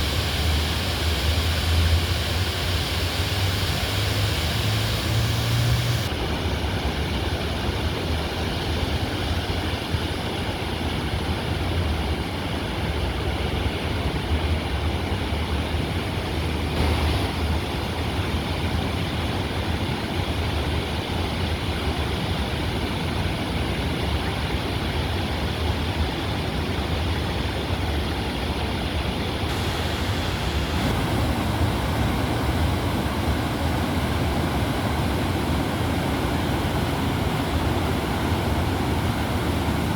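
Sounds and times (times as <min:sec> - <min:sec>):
floodwater rushing in river: 0:00.0 - 0:06.4, 0:16.8 - 0:18.0, 0:29.5 - 0:39.9.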